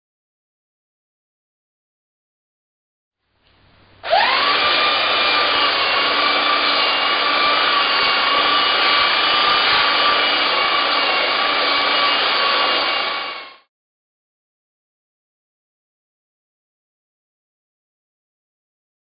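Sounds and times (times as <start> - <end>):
power tool abrading metal: 4.0 - 13.7.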